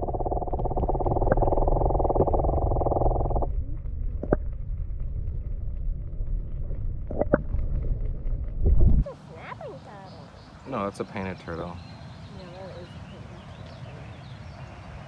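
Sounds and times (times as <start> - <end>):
buzzing drone: 0.0 - 5.2
wind rumbling on microphone: 0.0 - 15.0.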